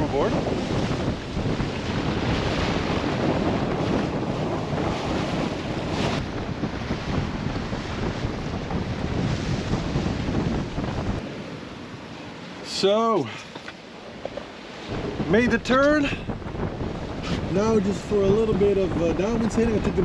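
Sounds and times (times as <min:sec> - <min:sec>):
water splashing against hull: 0:00.0 - 0:11.2
wind buffeting microphone: 0:00.0 - 0:11.2, 0:14.9 - 0:20.0.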